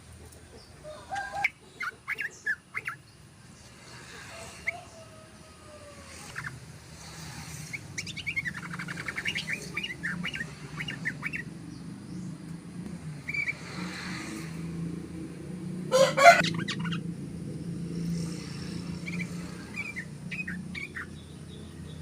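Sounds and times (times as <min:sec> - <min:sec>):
bird chattering song: 0:00.5 - 0:03.3, 0:06.1 - 0:12.4, 0:13.2 - 0:14.4, 0:16.2 - 0:17.1, 0:18.3 - 0:22.0.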